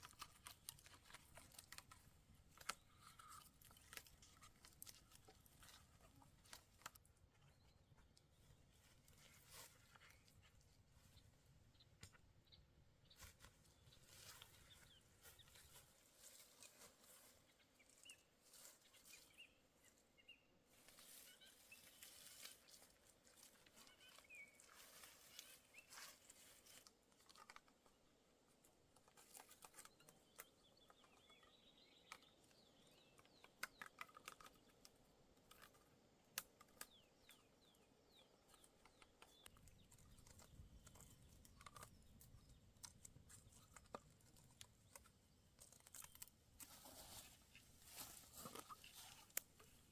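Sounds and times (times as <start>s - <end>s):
faint clicks and rustling: 0.0s - 11.2s, 20.8s - 49.9s
faint bird chirps: 17.1s - 26.6s, 29.4s - 35.8s.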